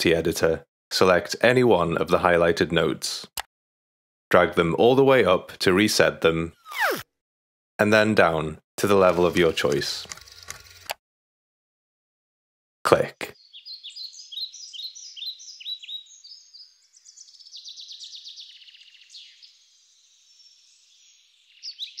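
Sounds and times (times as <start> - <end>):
birds chirping and trilling: 13.2 - 22.0.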